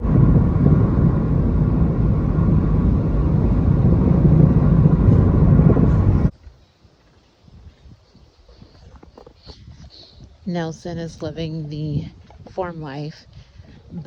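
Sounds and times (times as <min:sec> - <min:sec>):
moving vehicle rumble: 0:00.0 - 0:06.3.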